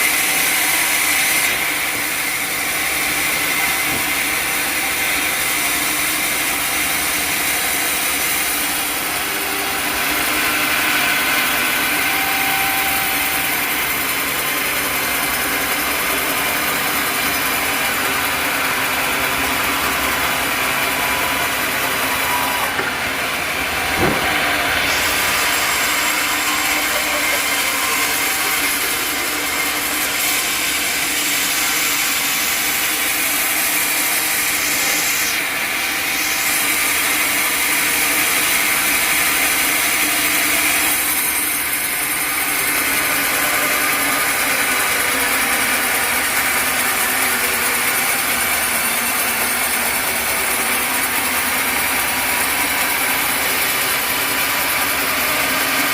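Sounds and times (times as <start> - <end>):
sawmill saw cutting wood: 0.0 - 55.9
brief knock: 23.9 - 24.4.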